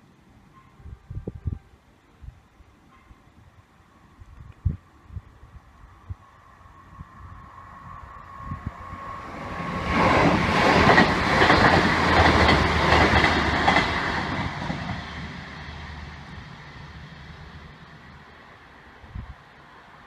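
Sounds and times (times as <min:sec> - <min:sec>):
train passing at speed: 0:00.0 - 0:20.0.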